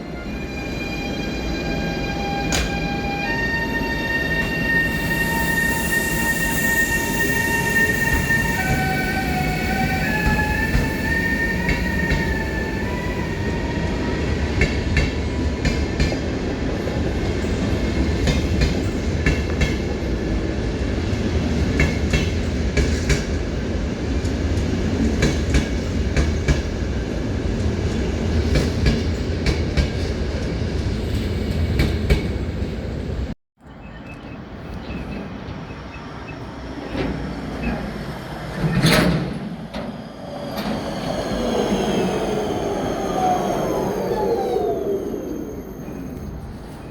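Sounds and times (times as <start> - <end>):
train rumbling past: 0.0 - 46.9
rising whine: 39.7 - 46.9.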